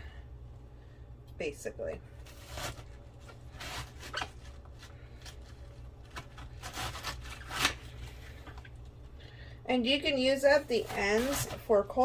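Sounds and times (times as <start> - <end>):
knife slicing through cabbage: 2.2 - 2.9, 3.5 - 4.3, 6.1 - 7.9, 10.7 - 11.7.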